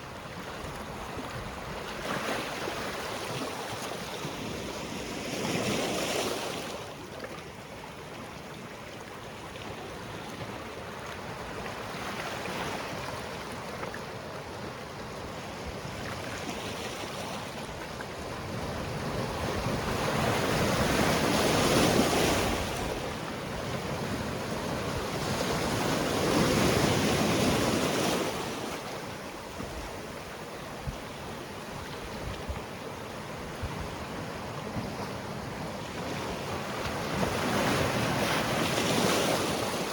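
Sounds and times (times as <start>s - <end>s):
waves breaking on rocky shore: 15.8s - 39.9s.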